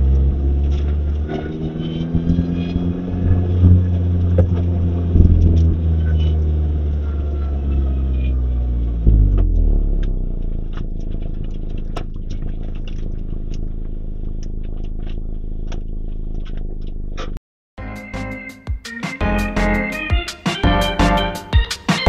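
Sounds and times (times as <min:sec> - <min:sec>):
car engine revving: 0:00.0 - 0:17.4.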